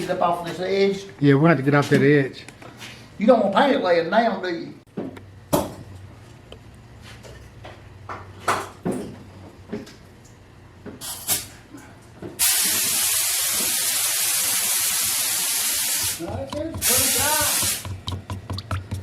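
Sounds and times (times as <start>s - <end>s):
spray gun hissing: 12.4s - 17.9s.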